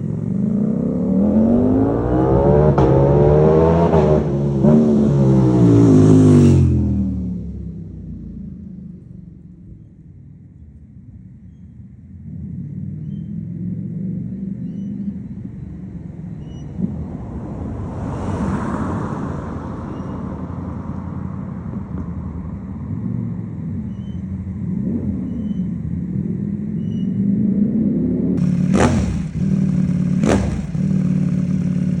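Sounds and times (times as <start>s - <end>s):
motorcycle engine idling and revving: 0.0s - 18.0s, 19.2s - 32.0s
motorcycle throttle blips: 28.4s - 32.0s.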